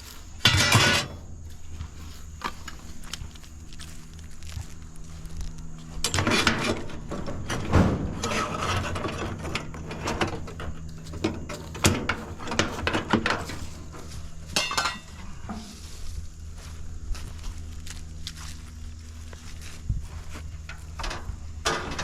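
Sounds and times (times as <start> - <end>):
scrap metal clanking and scraping: 0.0 - 3.0, 5.9 - 16.2, 20.1 - 22.0
low hum: 0.0 - 22.0.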